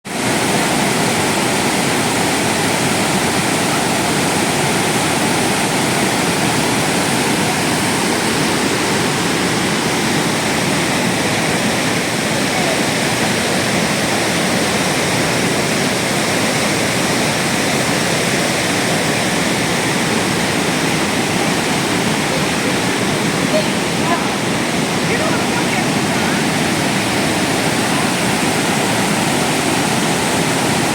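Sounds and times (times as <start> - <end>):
waterfall rushing: 0.1 - 30.9.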